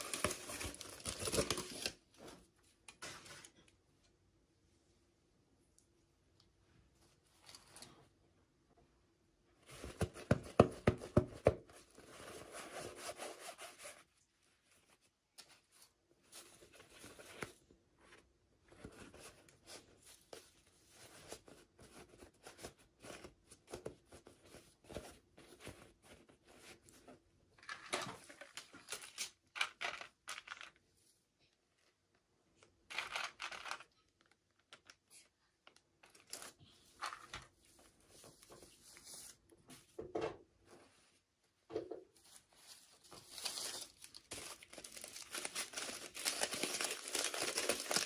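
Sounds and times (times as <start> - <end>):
packaging rustling and tearing: 0.0 - 2.0, 43.0 - 48.0.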